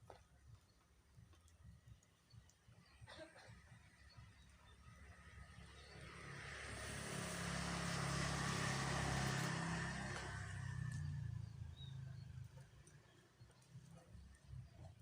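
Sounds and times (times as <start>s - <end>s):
vehicle passing by: 4.8s - 13.5s.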